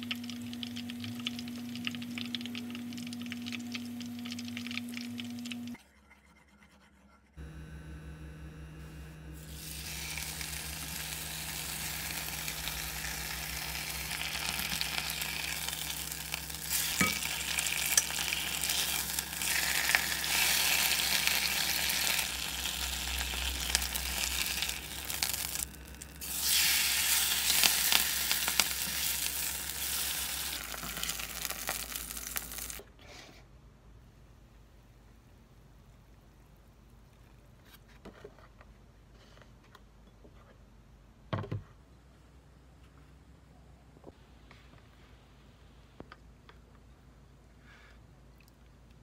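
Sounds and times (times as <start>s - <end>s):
cabbage sizzling in oil: 9.4s - 32.8s.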